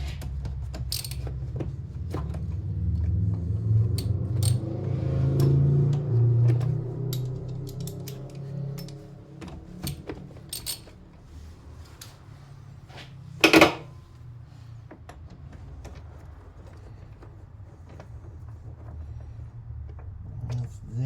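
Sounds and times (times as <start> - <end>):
hand tools clicking on metal: 0.2 - 1.4, 5.4 - 9.0.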